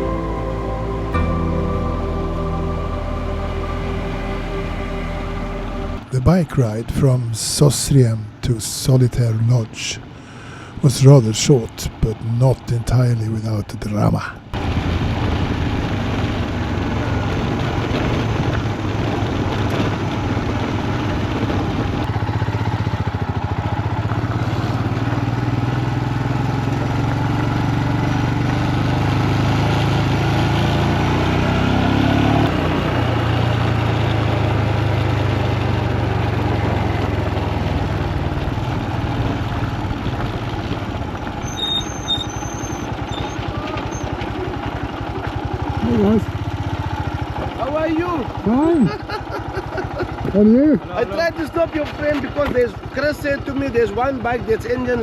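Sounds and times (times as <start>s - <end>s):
road and wind noise: 3.6s - 53.0s
motorcycle engine running: 14.6s - 55.0s.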